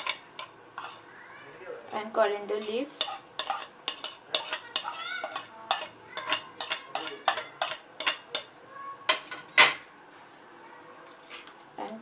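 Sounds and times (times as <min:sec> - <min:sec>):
spoon clinking against bowls: 0:00.0 - 0:01.0, 0:02.6 - 0:08.5.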